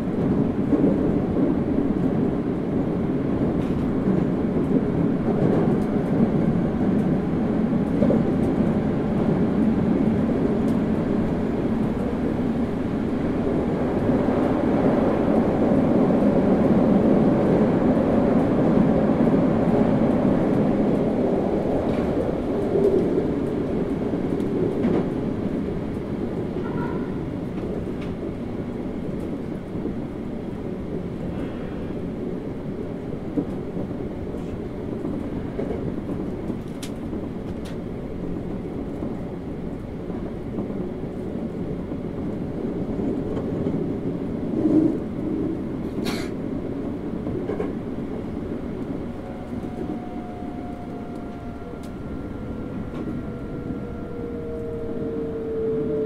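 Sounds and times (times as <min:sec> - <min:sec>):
train wheels rumbling on rail: 0:00.0 - 0:56.0
traction motor whine: 0:49.3 - 0:56.0.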